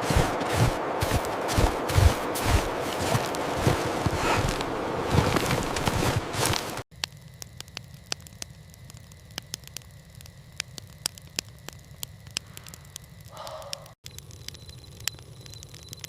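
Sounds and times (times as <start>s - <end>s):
rushing noise: 0.0s - 6.8s
sharp crackles and pops: 0.0s - 16.0s.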